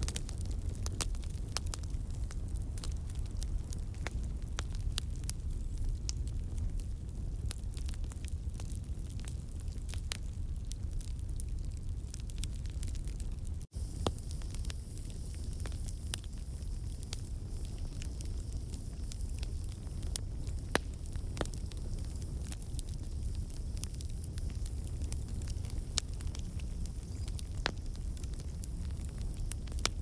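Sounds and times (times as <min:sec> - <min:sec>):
campfire crackling: 0:00.0 - 0:30.0
low rumble of flame: 0:00.0 - 0:30.0.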